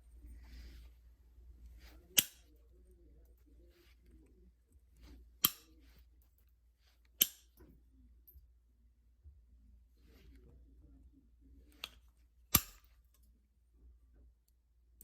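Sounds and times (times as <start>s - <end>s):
faint handling noise: 0.0s - 8.5s.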